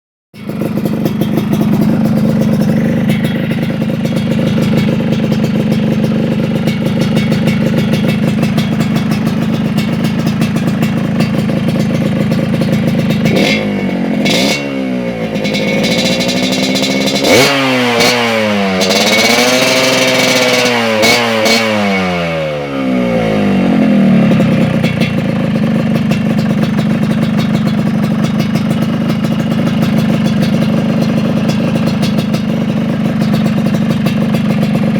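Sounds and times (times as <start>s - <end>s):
motorcycle engine idling and revving: 0.4s - 34.9s.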